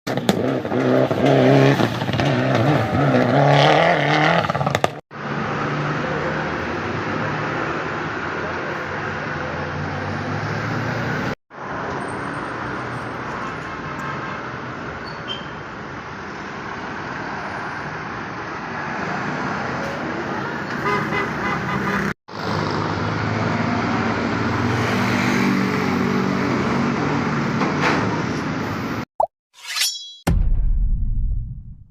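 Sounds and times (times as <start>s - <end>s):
road traffic noise: 0.1s - 29.1s
vehicle horn honking: 20.8s - 22.1s.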